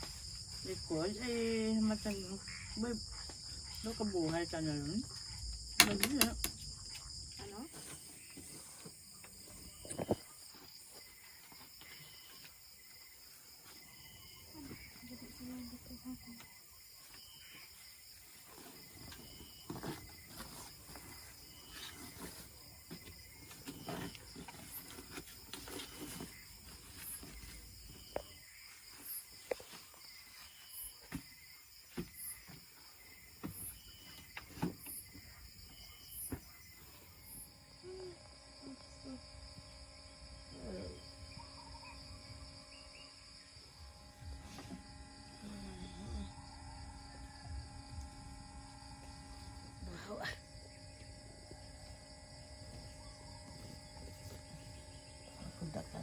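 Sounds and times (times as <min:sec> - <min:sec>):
crickets chirring: 0:00.0 - 0:56.0
sharp clicks and knocks: 0:05.8 - 0:06.6.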